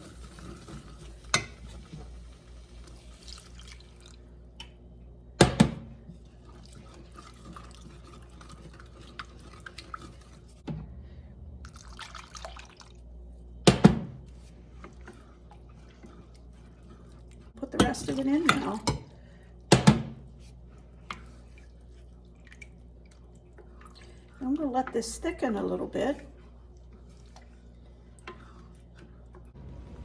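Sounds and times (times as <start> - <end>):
milk pouring and splashing: 2.5 - 4.5, 6.3 - 10.6, 11.6 - 13.3, 20.8 - 24.8.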